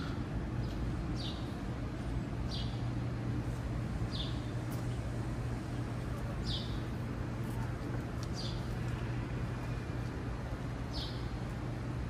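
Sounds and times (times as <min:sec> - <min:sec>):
low city hum: 0:00.0 - 0:12.0
bird chirping: 0:10.9 - 0:11.3.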